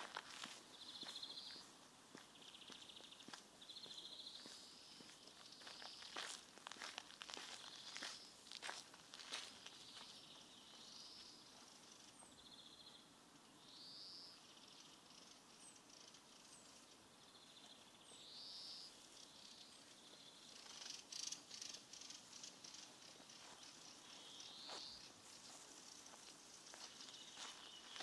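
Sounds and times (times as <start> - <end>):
footsteps: 0.0 - 10.1, 22.7 - 28.0.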